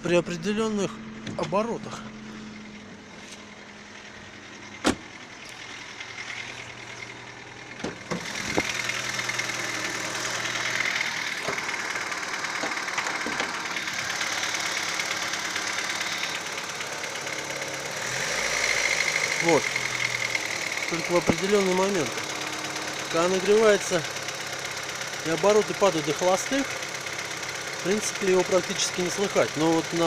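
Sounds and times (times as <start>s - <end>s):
car engine running: 0.0s - 30.0s
engine knocking: 5.0s - 30.0s.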